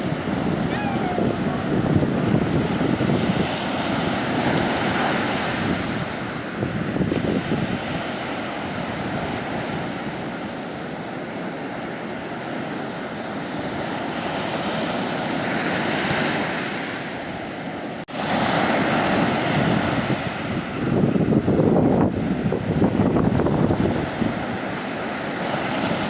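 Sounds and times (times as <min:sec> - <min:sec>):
wind buffeting microphone: 0:00.0 - 0:11.0, 0:18.5 - 0:26.0
sea waves washing onto beach: 0:00.0 - 0:26.0.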